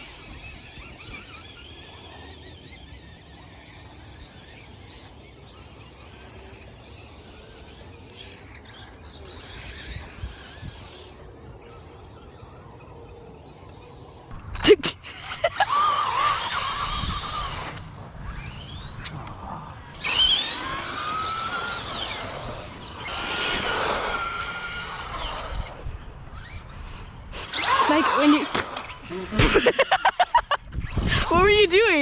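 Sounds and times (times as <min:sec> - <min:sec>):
electric motor whine: 0:00.0 - 0:14.4, 0:16.0 - 0:26.7
tyre and ground noise: 0:00.0 - 0:14.7, 0:16.1 - 0:31.4.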